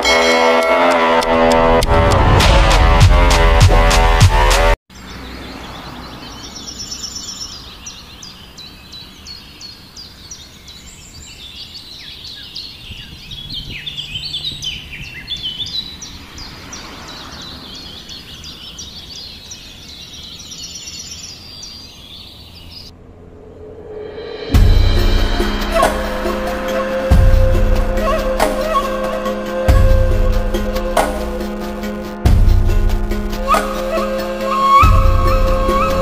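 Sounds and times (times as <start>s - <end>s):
outdoor background noise: 0.0s - 36.0s
birds chirping and calling: 4.9s - 22.9s.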